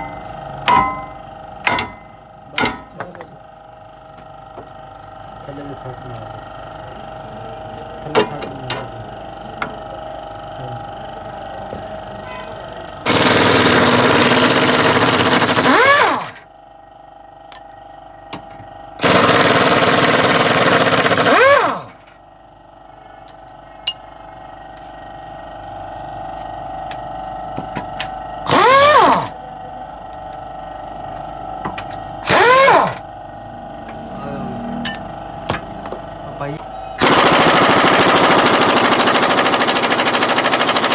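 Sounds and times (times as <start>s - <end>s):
compressed-air gun blasting: 13.1s - 16.4s, 19.0s - 21.9s, 28.5s - 29.3s, 32.3s - 33.0s, 37.0s - 40.9s.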